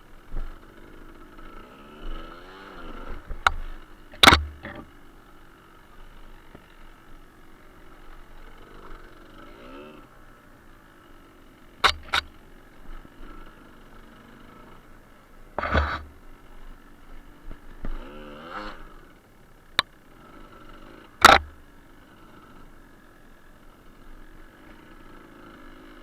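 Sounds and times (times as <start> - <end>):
two-stroke motorcycle engine: 0.0 - 26.0
sharp knocks: 4.2 - 4.9, 11.8 - 12.3, 21.2 - 21.6.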